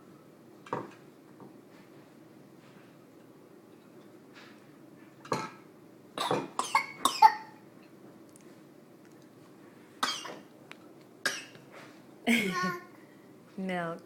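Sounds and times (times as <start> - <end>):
young child coughing: 6.2 - 7.5, 10.0 - 10.4, 11.2 - 11.6.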